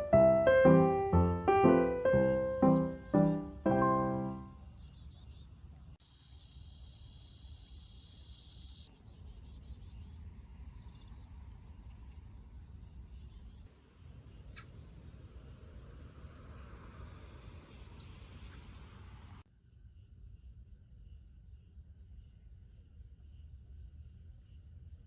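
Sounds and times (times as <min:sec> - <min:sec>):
high rapid chirping calls: 0:00.0 - 0:04.5.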